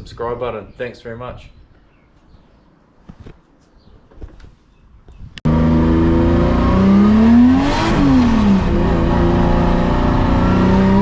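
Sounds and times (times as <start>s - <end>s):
car engine revving: 5.5s - 11.0s.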